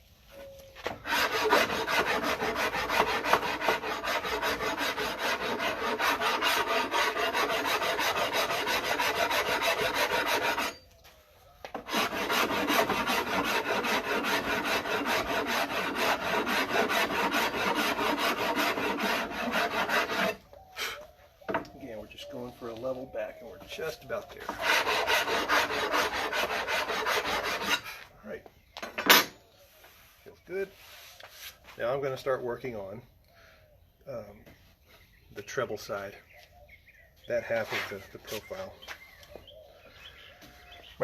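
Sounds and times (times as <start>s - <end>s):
wood rasp carving wood: 0.9s - 10.8s, 11.7s - 20.4s, 24.4s - 27.9s.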